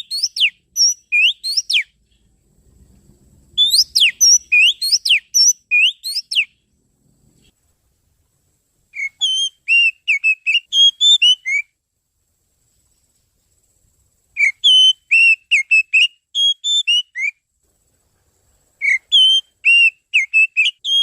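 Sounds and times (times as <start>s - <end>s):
bird whistling song: 0.0s - 2.3s, 3.6s - 6.7s, 8.9s - 11.8s, 14.3s - 17.4s, 18.8s - 21.0s.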